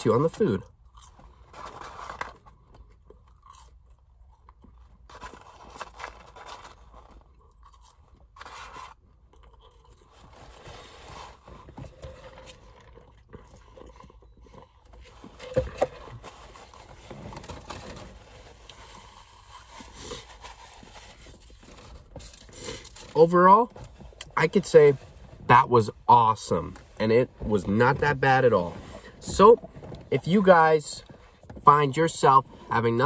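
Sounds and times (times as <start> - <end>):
person chewing: 0.6 - 10.9, 12.0 - 15.2
soft scraping and rustling: 10.1 - 24.2, 28.2 - 30.3.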